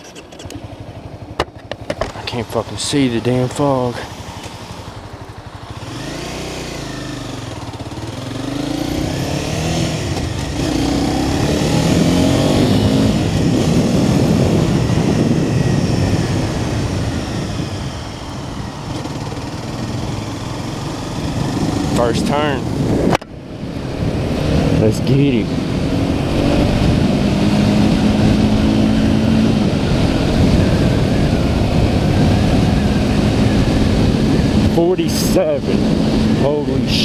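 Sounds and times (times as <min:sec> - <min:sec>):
motorcycle engine accelerating: 0:00.0 - 0:37.0
wind noise: 0:08.1 - 0:37.0.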